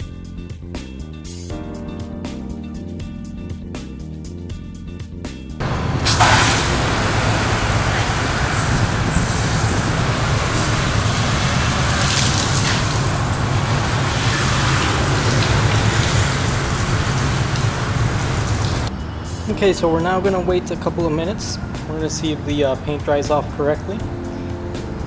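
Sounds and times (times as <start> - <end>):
water spray hissing: 5.6 - 18.9.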